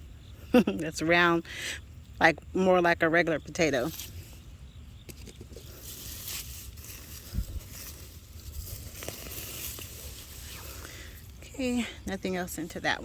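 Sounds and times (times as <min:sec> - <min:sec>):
hands rustling straw and soil: 0:03.8 - 0:04.5, 0:05.1 - 0:13.0.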